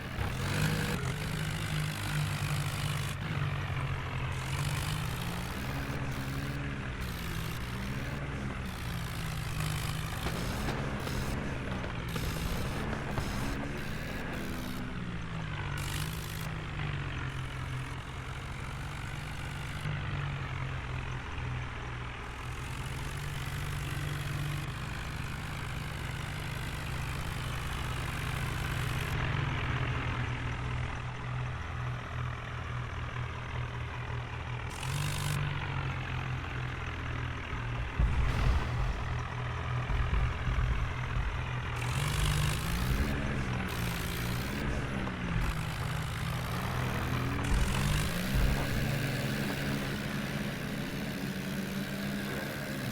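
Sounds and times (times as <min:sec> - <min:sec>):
tractor diesel engine under load: 0:00.0 - 0:52.9
heavy low rumble: 0:37.4 - 0:49.0.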